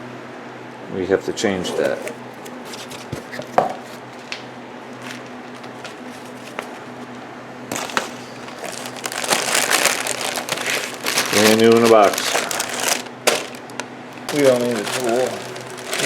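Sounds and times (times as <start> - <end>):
packaging crinkling: 5.0 - 7.1, 7.7 - 16.0.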